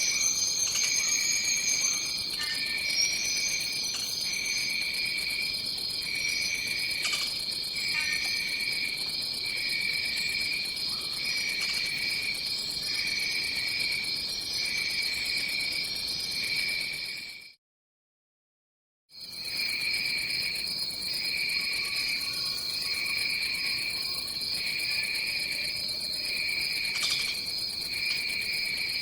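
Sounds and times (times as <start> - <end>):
high-pitched insect trilling drone: 0.0 - 8.9.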